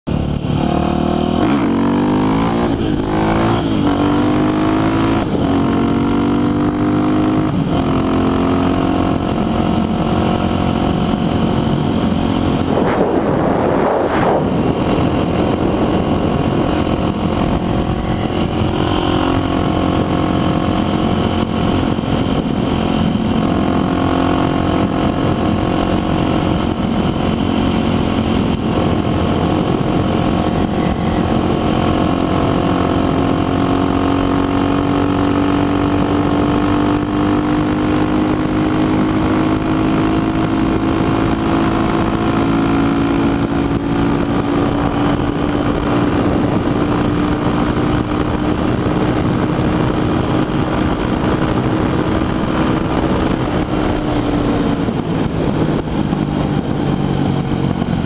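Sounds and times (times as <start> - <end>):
motorcycle engine accelerating: 0.1 - 58.0
wind noise: 0.1 - 58.0
brief whoosh: 12.4 - 15.0.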